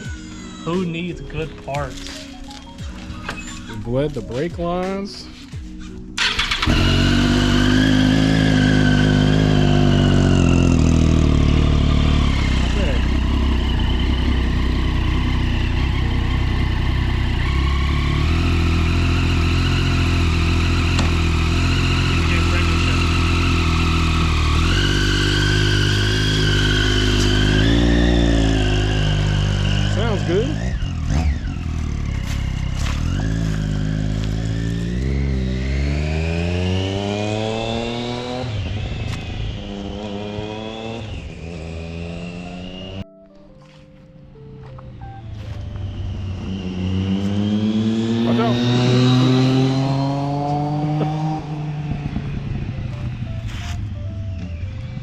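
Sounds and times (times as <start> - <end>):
motorcycle engine idling: 6.2 - 34.9.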